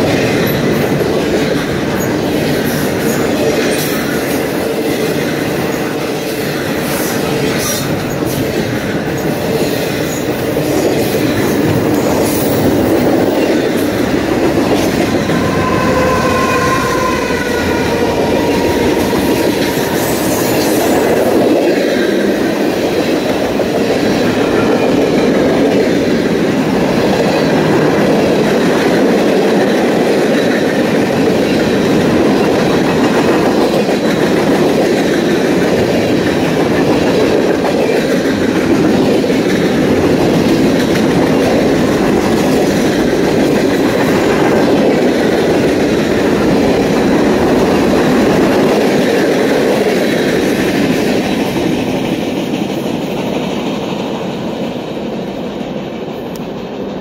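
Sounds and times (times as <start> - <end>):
steel wheels rolling on rails: 0.0 - 57.0
wheel squeal: 15.0 - 21.1.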